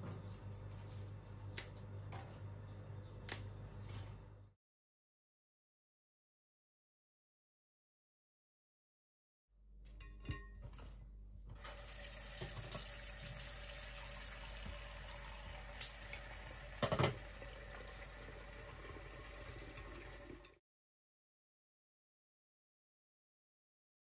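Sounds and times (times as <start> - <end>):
tap water running into vase: 11.6 - 20.6.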